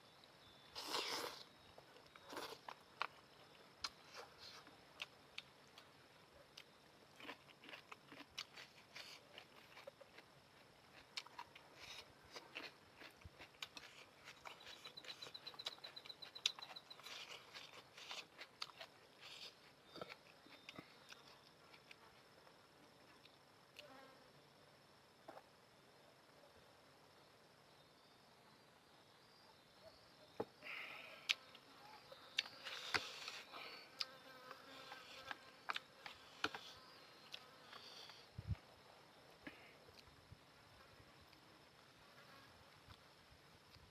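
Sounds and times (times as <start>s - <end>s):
chewing noodles: 6.6s - 22.0s.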